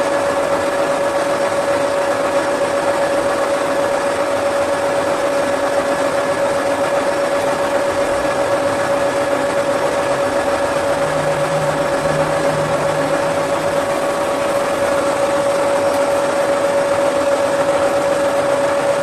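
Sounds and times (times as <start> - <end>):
workshop machine whining: 0.0 - 19.0
low hum: 9.6 - 17.0.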